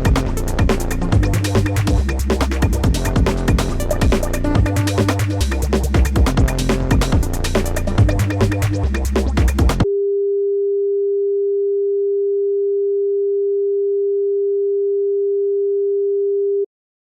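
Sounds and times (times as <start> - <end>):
electronic music with a beat: 0.0 - 9.9.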